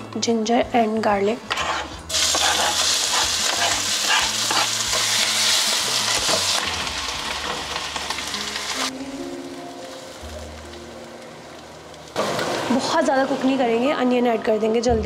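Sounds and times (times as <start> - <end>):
spatula stirring in pan: 1.4 - 6.4
food sizzling in hot oil: 1.4 - 14.1.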